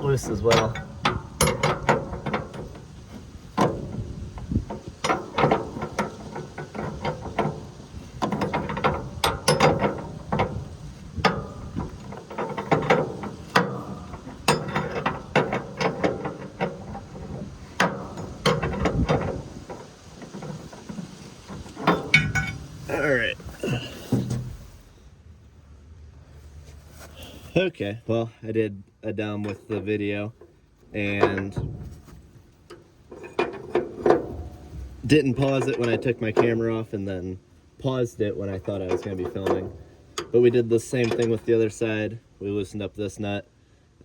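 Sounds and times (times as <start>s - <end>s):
metal knocks: 0.0s - 23.1s, 29.4s - 37.2s, 38.2s - 41.6s.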